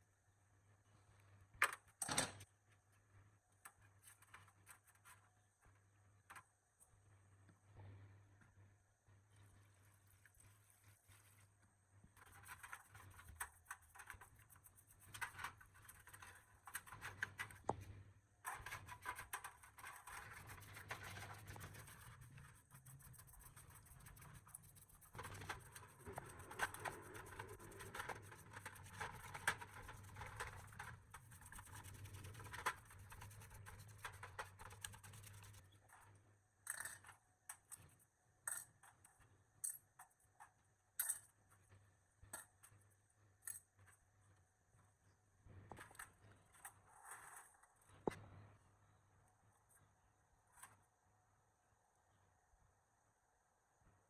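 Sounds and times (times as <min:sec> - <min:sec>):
scratching and scraping clicks: 0:12.2 - 0:44.0.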